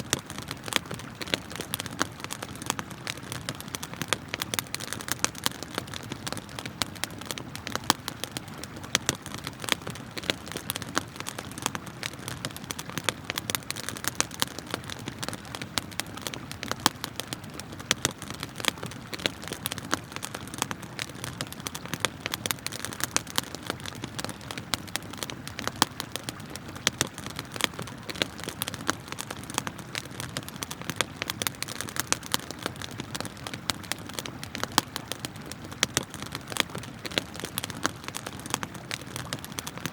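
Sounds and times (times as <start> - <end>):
campfire crackling and popping: 0.0 - 39.9
river water flowing: 0.0 - 39.9.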